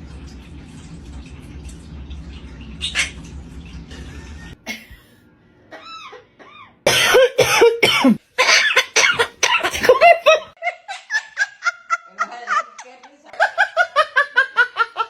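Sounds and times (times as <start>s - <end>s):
parrot mimicking cough: 5.7s - 10.1s.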